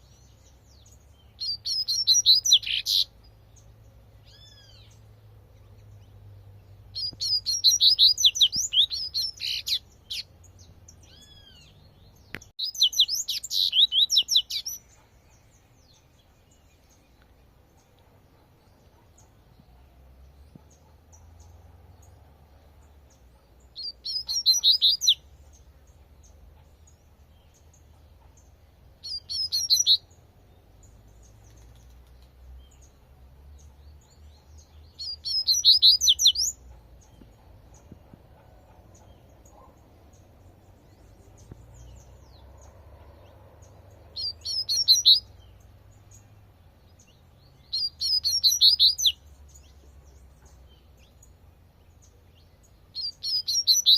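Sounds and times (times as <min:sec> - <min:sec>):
bird singing rapid high notes: 0:00.8 - 0:03.2, 0:07.0 - 0:10.3, 0:11.0 - 0:15.0, 0:23.8 - 0:25.3, 0:29.0 - 0:30.1, 0:35.0 - 0:36.6, 0:44.2 - 0:45.5, 0:47.6 - 0:49.2, 0:53.0 - 0:53.9.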